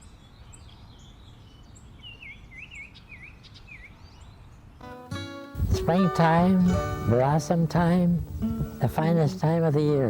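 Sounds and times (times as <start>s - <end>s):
low hiss: 5.2s - 10.0s.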